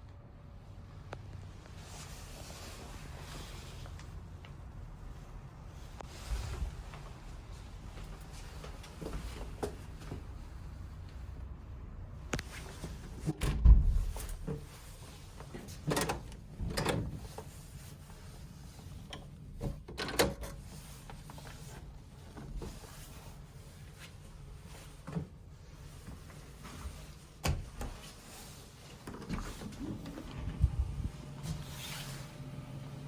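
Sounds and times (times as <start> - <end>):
low thump: 13.4 - 14.1.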